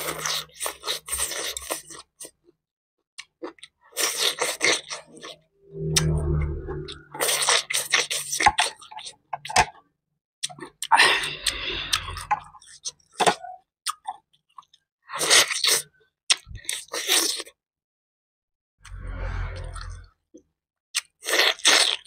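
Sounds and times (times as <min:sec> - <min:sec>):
person chewing: 0:00.0 - 0:02.4, 0:03.2 - 0:05.4, 0:07.1 - 0:09.2, 0:10.4 - 0:17.6, 0:21.0 - 0:22.0.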